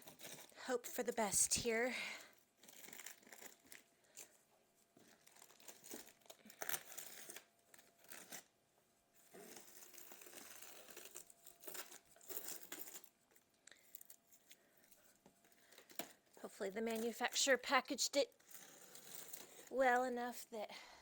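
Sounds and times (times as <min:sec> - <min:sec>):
packaging crinkling and tearing: 0:02.3 - 0:08.6, 0:09.2 - 0:17.6, 0:18.2 - 0:19.8.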